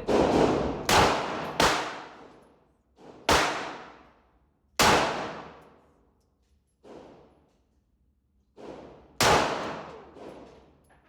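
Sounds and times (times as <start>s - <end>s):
handgun shots with echo: 0.0s - 2.3s, 3.3s - 4.1s, 4.8s - 5.7s, 9.2s - 10.4s.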